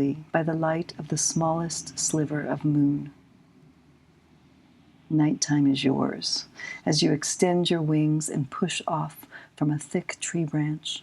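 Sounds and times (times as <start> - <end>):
low hum: 0.0 - 8.7.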